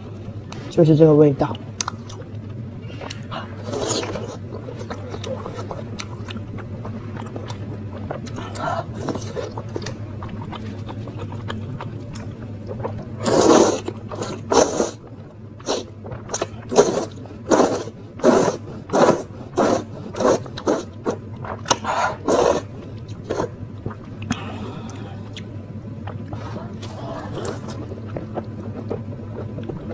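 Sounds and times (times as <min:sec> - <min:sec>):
mouth sounds eating noodles: 0:02.8 - 0:15.0, 0:15.6 - 0:25.5.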